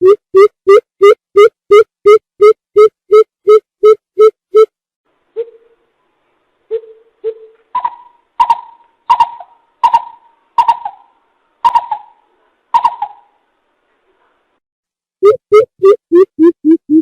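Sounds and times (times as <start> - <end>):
coucal hooting: 6.7 - 13.4.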